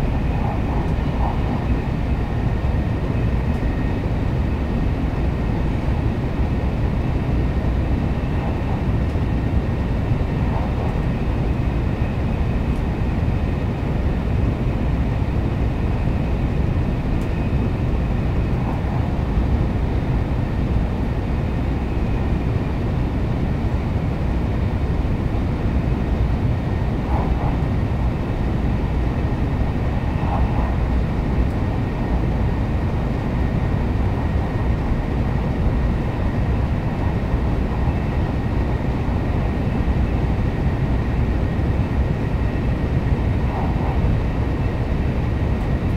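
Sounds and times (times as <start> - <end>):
train wheels rumbling: 0.0 - 13.8, 25.6 - 45.9.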